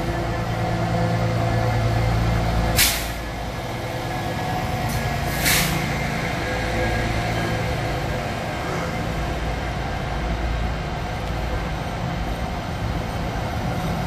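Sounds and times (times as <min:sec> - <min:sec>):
electric train hum: 0:00.0 - 0:14.0
compressed air hiss: 0:02.8 - 0:03.2, 0:05.3 - 0:05.8.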